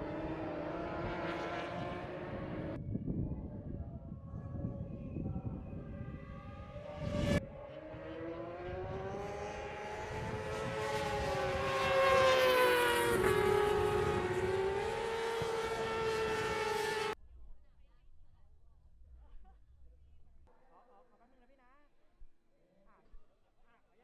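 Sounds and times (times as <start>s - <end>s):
racing motorcycle engines revving: 0.0s - 2.8s, 4.4s - 17.2s.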